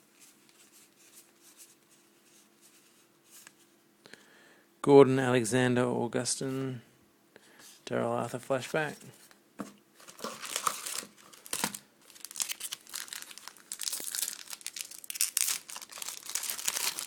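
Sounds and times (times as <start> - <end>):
foil wrapper crinkling and tearing: 10.0 - 17.0.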